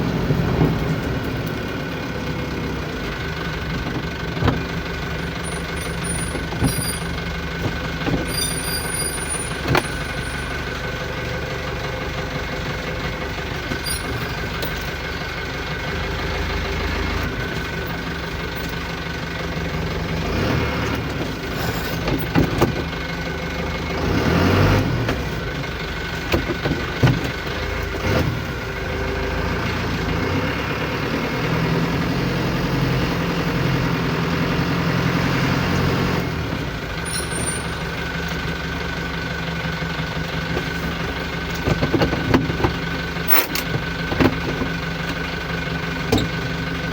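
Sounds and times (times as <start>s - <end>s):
truck engine idling: 0.0s - 46.9s.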